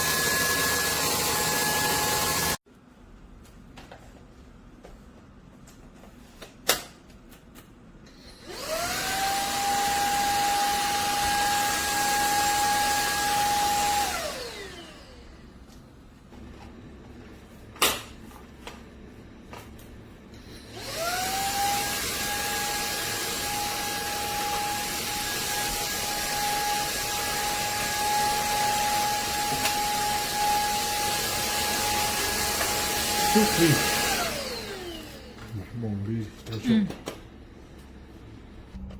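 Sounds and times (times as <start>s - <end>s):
vacuum cleaner motor whine: 0.0s - 2.6s, 8.1s - 15.5s, 20.3s - 35.5s.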